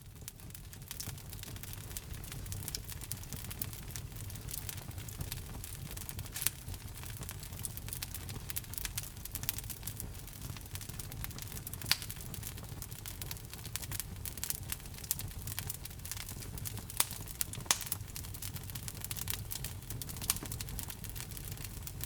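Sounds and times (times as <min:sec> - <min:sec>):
wood fire crackling: 0:00.0 - 0:22.0
fire pops: 0:00.2 - 0:22.0.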